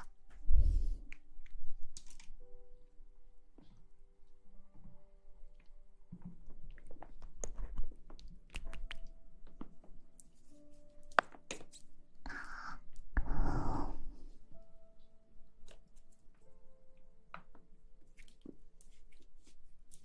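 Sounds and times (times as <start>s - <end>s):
crisp clicks and taps: 5.6s - 10.4s, 11.0s - 11.9s.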